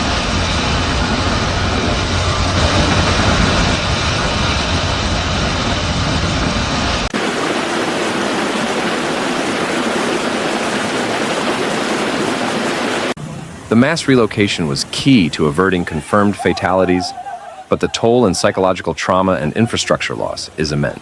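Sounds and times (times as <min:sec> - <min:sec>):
rushing water: 0:07.1 - 0:21.0
traffic rumble: 0:13.2 - 0:21.0.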